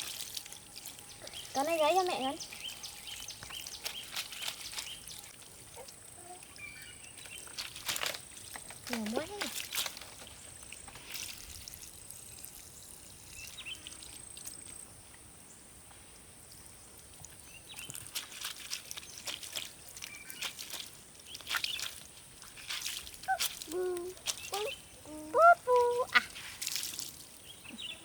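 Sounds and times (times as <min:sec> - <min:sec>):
hand washing clothes in water: 0:00.0 - 0:14.9, 0:17.1 - 0:28.0
water splashing and dripping: 0:00.0 - 0:15.2, 0:16.5 - 0:28.0.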